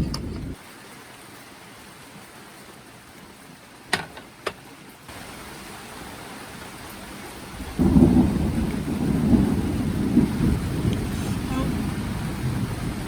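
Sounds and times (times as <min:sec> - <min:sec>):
steady rain: 0:00.4 - 0:13.0
thunder rumbling: 0:07.5 - 0:13.0.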